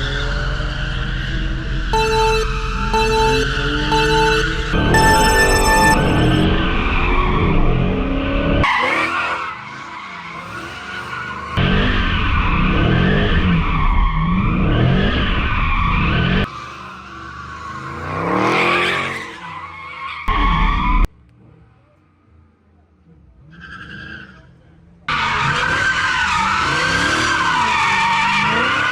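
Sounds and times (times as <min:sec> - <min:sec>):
tires squealing: 0:00.0 - 0:01.9, 0:06.6 - 0:21.6, 0:23.1 - 0:28.9.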